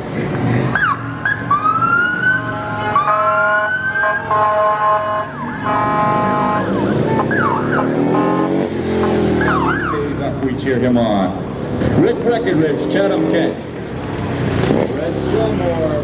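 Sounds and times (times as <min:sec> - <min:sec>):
police siren wailing: 0:00.7 - 0:08.5, 0:09.3 - 0:10.2
siren yelp sweeps: 0:05.3 - 0:08.4, 0:09.3 - 0:10.1
motorcycle engine revving: 0:05.6 - 0:16.0.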